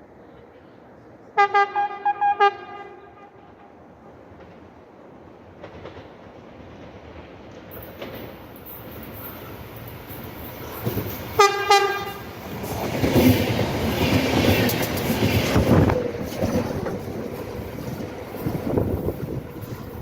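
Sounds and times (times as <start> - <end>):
train horn blasts: 1.4 - 3.8, 11.4 - 12.4
train wheels clattering over rails: 5.5 - 20.0.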